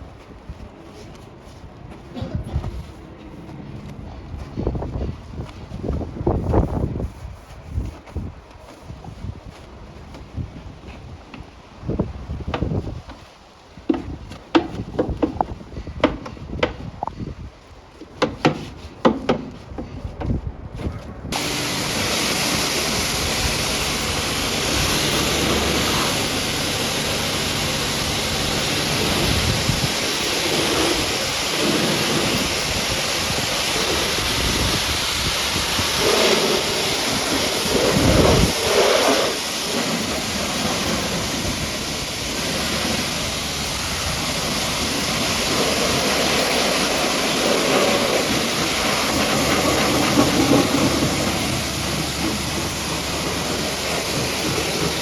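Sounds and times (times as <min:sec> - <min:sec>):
pressure washer spraying water: 0:21.3 - 0:55.0.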